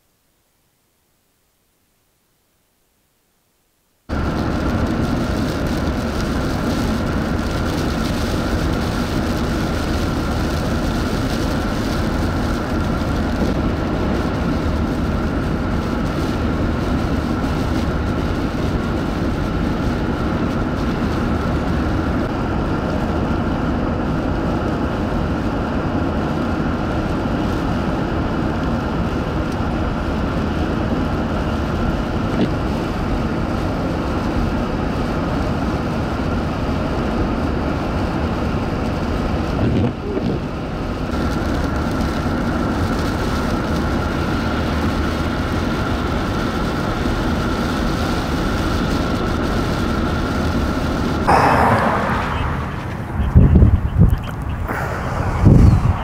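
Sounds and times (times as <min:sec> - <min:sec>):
faint steady whine: 0:00.0 - 0:33.8, 0:50.8 - 0:56.0
road noise: 0:04.1 - 0:56.0
wind noise: 0:51.3 - 0:56.0.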